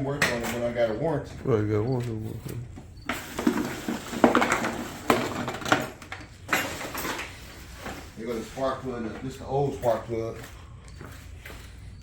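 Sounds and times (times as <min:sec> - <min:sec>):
small hard objects clinking: 0:03.1 - 0:07.8.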